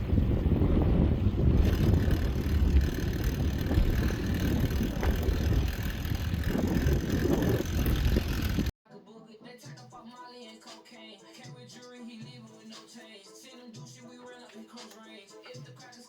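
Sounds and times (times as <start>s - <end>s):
wind buffeting microphone: 0.0s - 8.7s.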